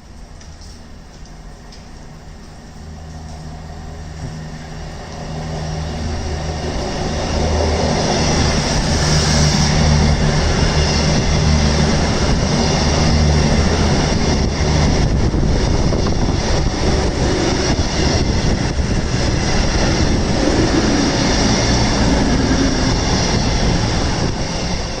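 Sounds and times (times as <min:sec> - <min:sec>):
train engine drone: 0:00.0 - 0:25.0
train wheels rushing on rail: 0:00.0 - 0:25.0.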